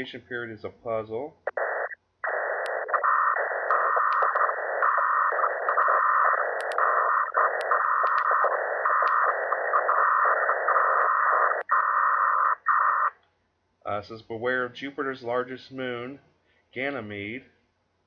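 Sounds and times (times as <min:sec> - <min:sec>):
sharp clicks: 0:01.5 - 0:10.8
radio static hiss pulsing: 0:01.5 - 0:13.1.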